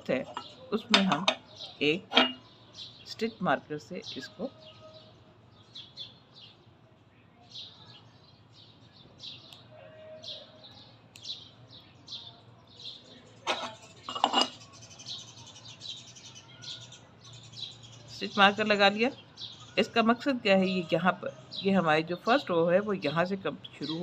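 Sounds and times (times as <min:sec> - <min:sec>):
bird chirping: 0:10.3 - 0:24.0.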